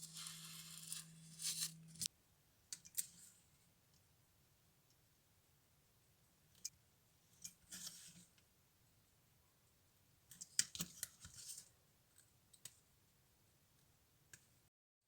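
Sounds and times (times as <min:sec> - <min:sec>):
rustling: 0:00.0 - 0:02.1.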